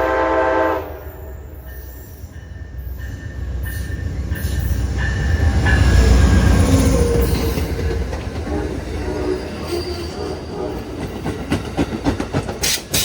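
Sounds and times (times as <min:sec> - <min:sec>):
train horn: 0:00.0 - 0:01.5
train rumbling: 0:00.0 - 0:13.0.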